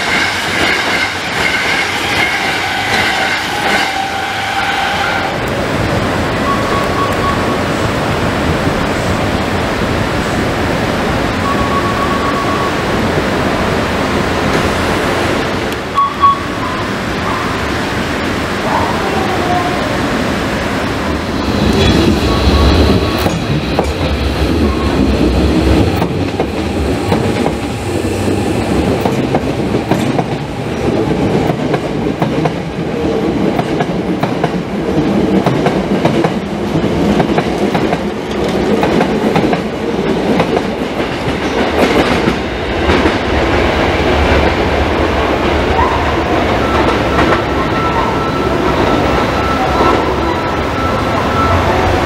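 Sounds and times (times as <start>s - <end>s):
train wheels clickety-clack: 0.0s - 4.6s, 21.5s - 48.0s
approaching train tone: 6.3s - 7.9s, 11.3s - 13.3s, 15.8s - 17.9s, 21.2s - 30.5s, 45.5s - 52.0s.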